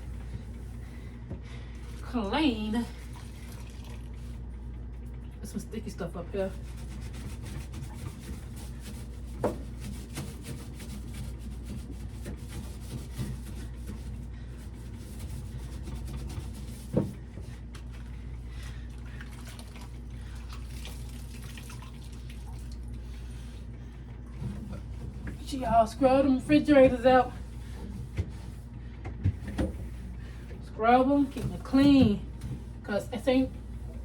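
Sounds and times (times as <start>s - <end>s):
paper towel rubbing: 6.4s - 17.2s.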